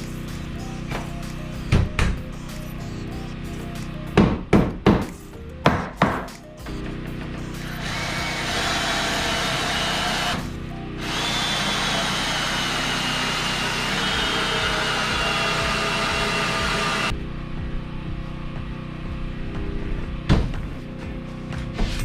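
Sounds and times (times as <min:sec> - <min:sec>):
power drill driving screws: 0:07.6 - 0:17.1.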